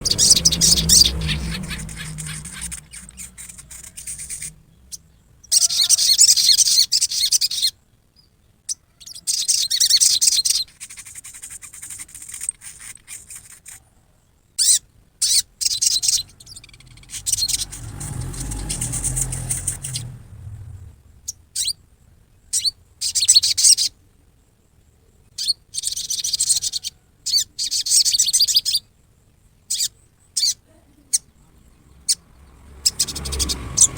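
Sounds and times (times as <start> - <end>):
low rumble: 0.0 - 5.5, 16.0 - 21.4
sunbird twittering chatter: 0.0 - 13.9, 14.6 - 21.8, 22.4 - 24.0, 25.3 - 28.9, 29.7 - 33.9.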